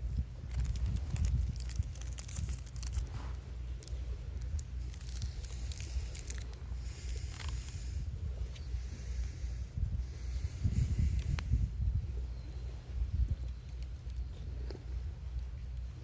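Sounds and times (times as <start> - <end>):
low steady rumble: 0.0 - 16.0
campfire crackling: 0.4 - 8.1
fire hiss: 4.1 - 11.8.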